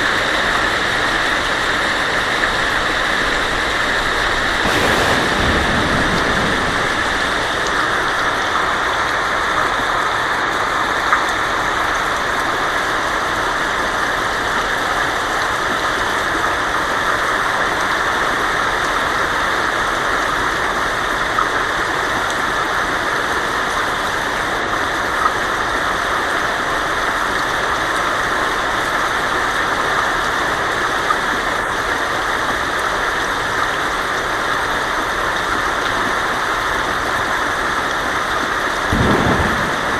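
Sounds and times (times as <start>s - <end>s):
heavy rain on a tin roof: 0.0s - 39.9s
louder single drops: 4.6s - 8.2s
short low rumble: 4.6s - 8.2s.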